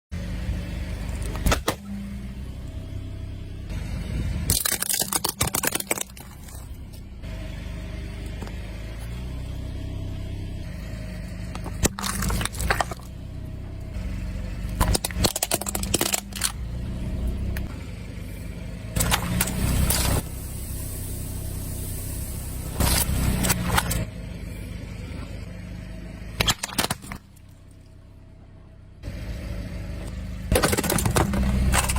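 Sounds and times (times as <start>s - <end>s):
truck engine running: 0.1s - 31.9s
objects crunching under tyres: 0.7s - 2.8s, 4.3s - 7.2s, 8.1s - 9.6s, 11.4s - 17.7s, 18.3s - 20.2s, 22.6s - 24.1s, 26.2s - 27.9s, 30.0s - 31.9s.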